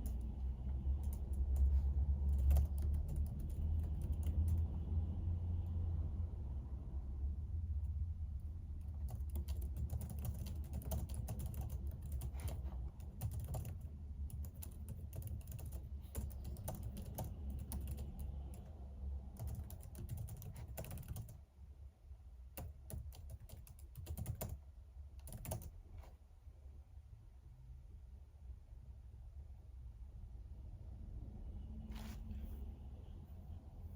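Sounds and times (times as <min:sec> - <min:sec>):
typing on computer keyboard: 0:00.0 - 0:04.8, 0:08.8 - 0:21.4, 0:22.5 - 0:24.6, 0:25.2 - 0:25.8.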